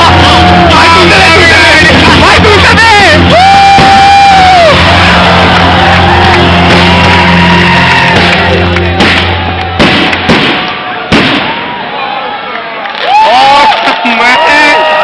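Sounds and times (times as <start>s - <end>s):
loud music with bass line: 0.0s - 10.4s
firework bangs: 0.0s - 12.0s
crowd shouting and whooping: 0.0s - 15.0s.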